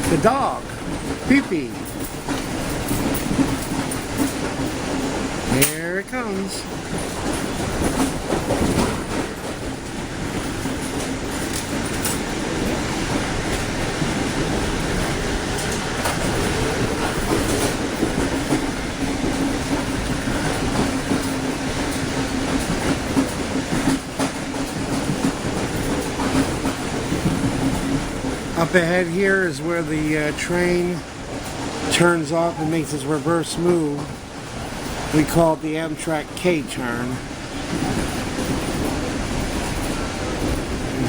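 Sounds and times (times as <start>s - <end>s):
train wheels rumbling on track: 0.0s - 41.0s
steady low hum: 31.9s - 41.0s.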